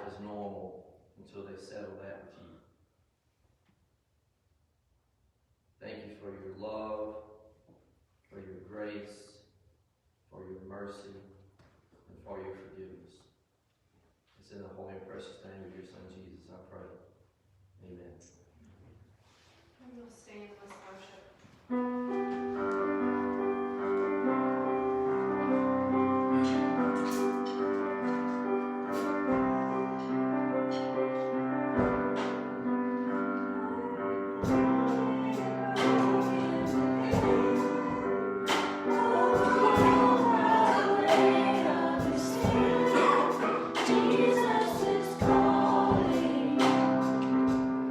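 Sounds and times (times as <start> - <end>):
sustained keyboard chords: 21.7 - 47.9
percussion strikes: 26.3 - 32.6, 34.4 - 47.8
voices singing: 31.9 - 47.6.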